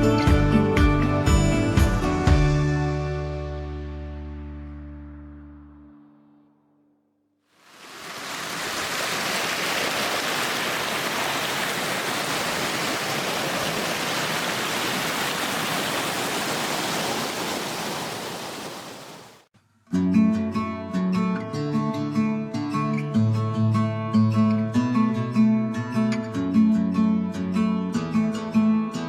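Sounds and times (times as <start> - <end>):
waterfall roaring: 7.6 - 19.4.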